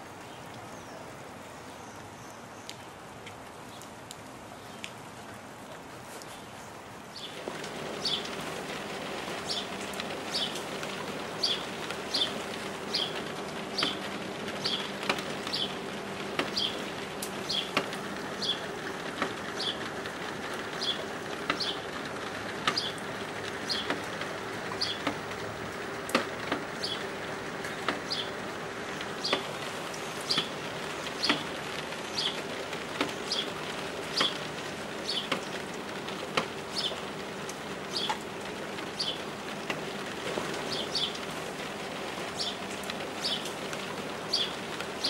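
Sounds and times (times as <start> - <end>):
rain falling: 0.0 - 45.0.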